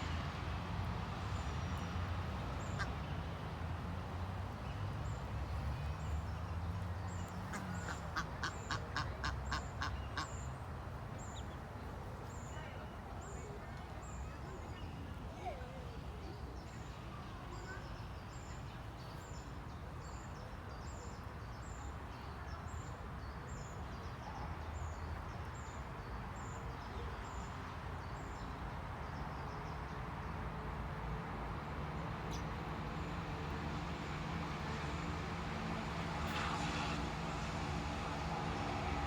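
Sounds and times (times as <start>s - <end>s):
outdoor background noise: 0.0s - 39.0s
vehicle engine hum: 31.5s - 39.0s.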